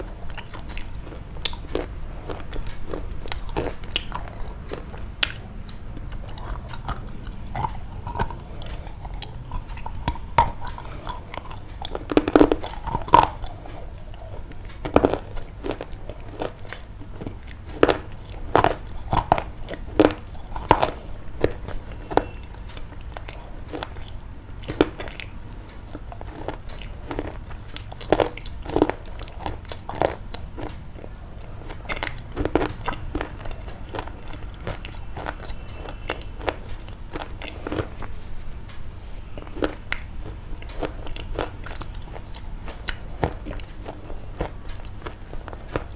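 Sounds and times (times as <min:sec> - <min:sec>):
crunching and clicking: 0:00.0 - 0:45.9
low steady hum: 0:00.0 - 0:45.9.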